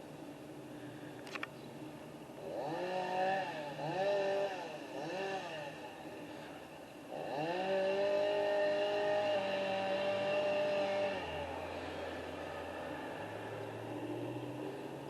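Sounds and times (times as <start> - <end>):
chainsaw revving: 2.4 - 6.0, 7.1 - 14.8.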